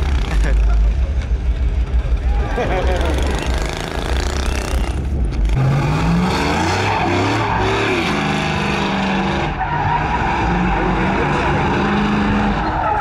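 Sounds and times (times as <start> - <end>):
truck engine revving hard: 0.0 - 0.9, 2.1 - 13.0.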